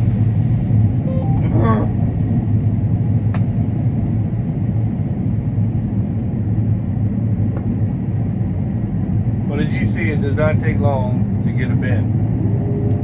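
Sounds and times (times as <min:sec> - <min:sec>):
combine harvester rumbling: 0:00.0 - 0:04.4.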